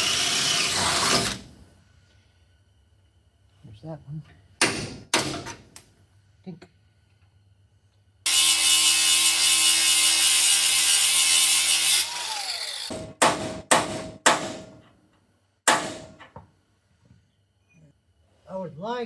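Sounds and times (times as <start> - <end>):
power tool running on steel: 8.3 - 12.9.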